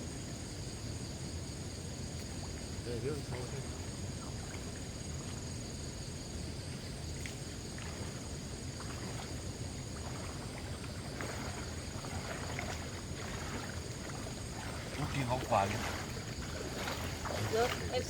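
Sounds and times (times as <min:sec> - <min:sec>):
water sloshing: 0:02.2 - 0:18.0.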